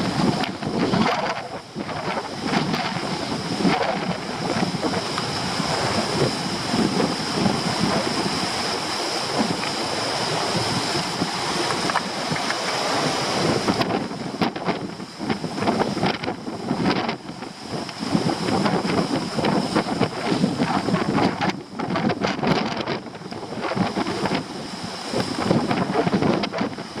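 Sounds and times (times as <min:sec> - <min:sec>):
strong wind buffeting microphone: 0:00.0 - 0:27.0
surf breaking on rocks: 0:00.0 - 0:27.0.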